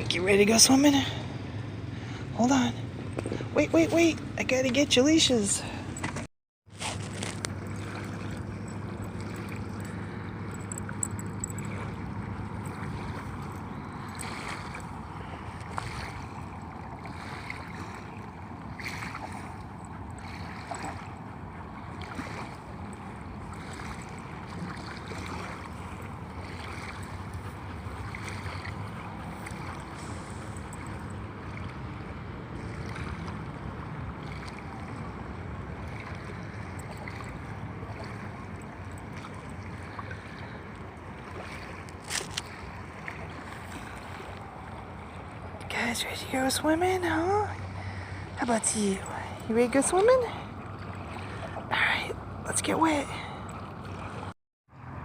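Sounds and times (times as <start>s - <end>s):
water lapping at shore: 0.0s - 55.0s
wind: 0.0s - 55.0s.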